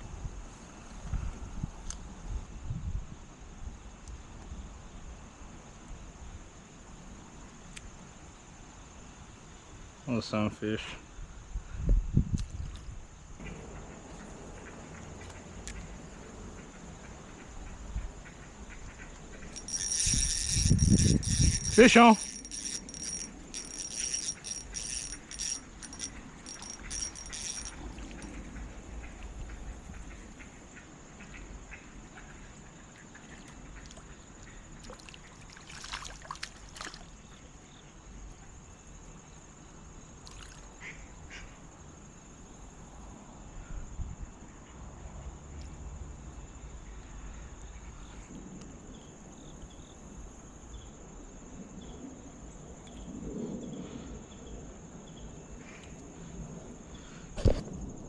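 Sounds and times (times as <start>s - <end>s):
trickling creek water: 13.4s - 29.3s, 32.0s - 37.5s, 40.2s - 40.8s.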